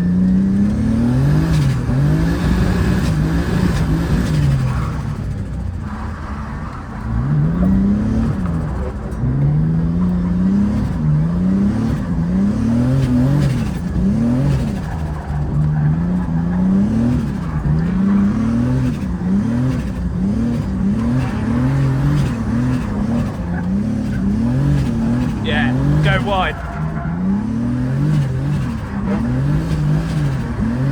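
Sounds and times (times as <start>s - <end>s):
car engine revving hard: 0.0s - 5.2s, 9.3s - 30.9s.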